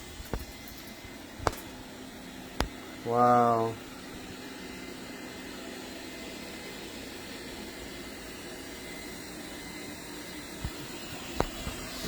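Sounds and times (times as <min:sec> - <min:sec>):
robot vacuum suction hiss: 0:07.8 - 0:12.0.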